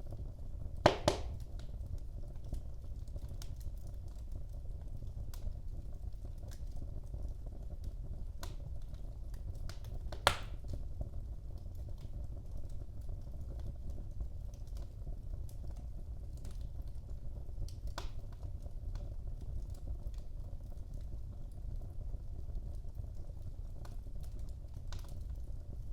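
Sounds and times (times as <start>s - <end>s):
wood fire crackling: 0.0s - 25.9s
loud pop from fire: 0.8s - 1.5s, 10.2s - 10.7s.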